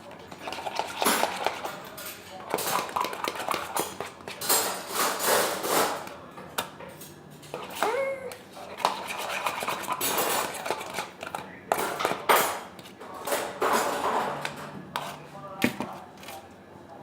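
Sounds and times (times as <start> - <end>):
kitchenware clattering and scraping: 0.0 - 16.5.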